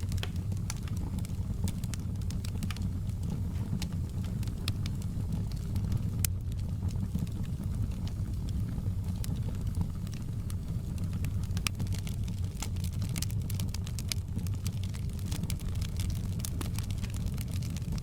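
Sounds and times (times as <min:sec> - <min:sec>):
low fire rumble: 0:00.0 - 0:18.0
wood fire crackling: 0:00.0 - 0:18.0.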